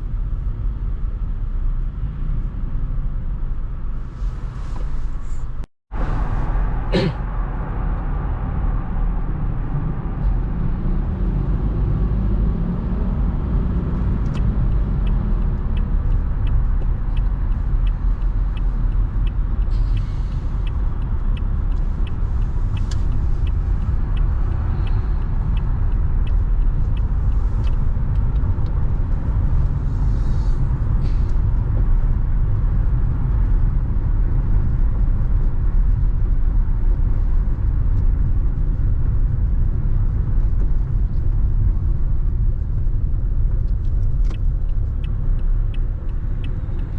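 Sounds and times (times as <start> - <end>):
car engine and tyre rumble: 0.0 - 46.9
turn signal clicking: 14.0 - 29.6, 42.2 - 46.9.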